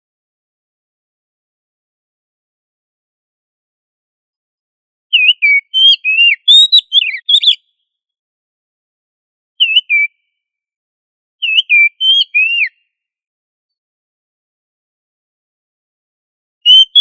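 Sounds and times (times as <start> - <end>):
bird singing whistled notes: 5.1 - 7.8, 9.6 - 10.4, 11.4 - 12.9, 16.6 - 17.0.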